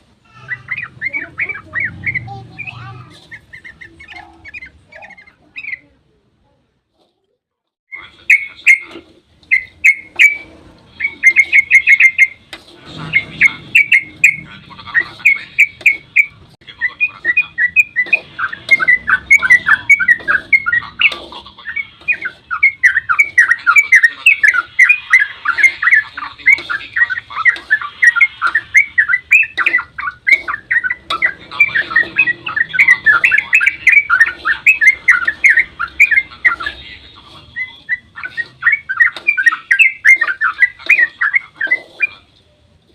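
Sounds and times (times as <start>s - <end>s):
bird singing bubbling chirps: 11.0s - 12.4s, 13.1s - 42.2s.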